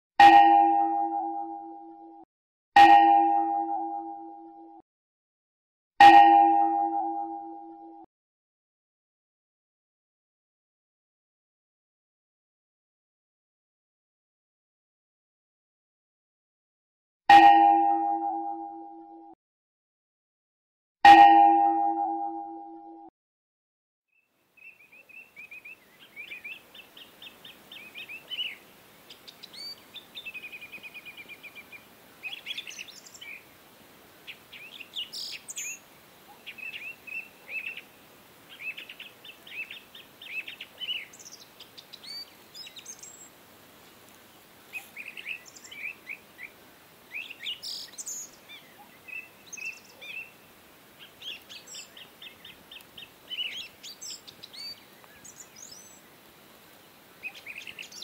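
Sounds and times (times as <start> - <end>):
faint steady hiss: 24.2 - 58.0
birds chirping and trilling: 24.6 - 33.5, 34.3 - 37.9, 38.5 - 43.3, 44.7 - 50.4, 51.0 - 56.2, 57.2 - 58.0.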